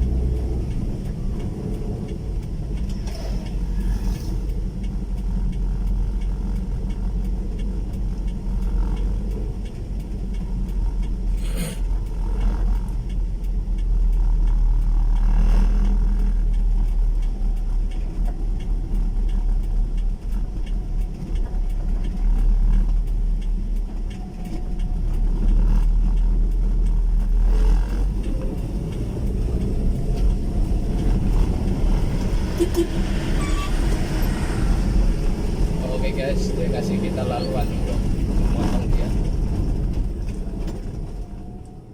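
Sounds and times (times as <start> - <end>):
vehicle engine low rumble: 0.0 - 41.9.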